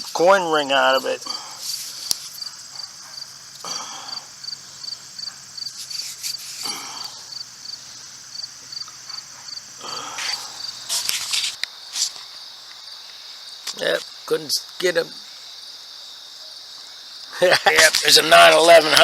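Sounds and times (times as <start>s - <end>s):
continuous high buzz: 0.0s - 16.4s
insects chirping: 0.0s - 19.0s
short scraping noises: 1.6s - 2.5s, 5.7s - 6.8s, 10.1s - 12.2s.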